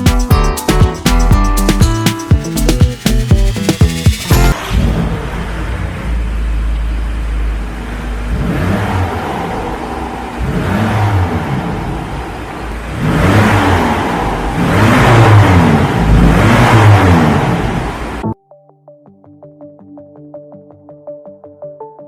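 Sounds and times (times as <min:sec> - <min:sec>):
pickup engine revving: 0:03.8 - 0:18.2.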